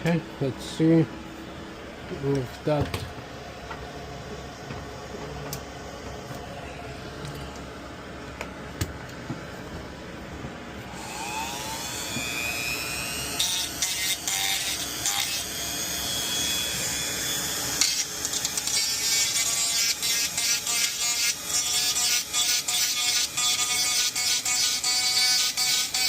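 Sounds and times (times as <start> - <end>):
rotary tool grinding: 17.8 - 26.0.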